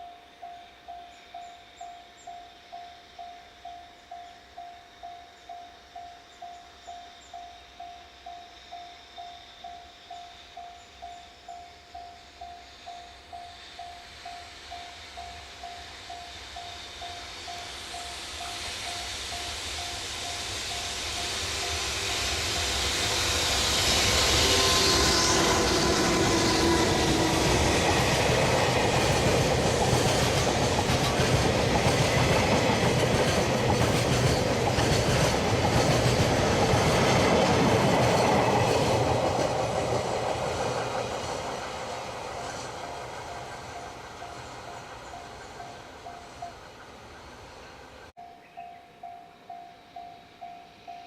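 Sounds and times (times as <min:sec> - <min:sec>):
freight train passing: 0:00.0 - 0:51.0
wheels clicking over rail joints: 0:26.1 - 0:47.0.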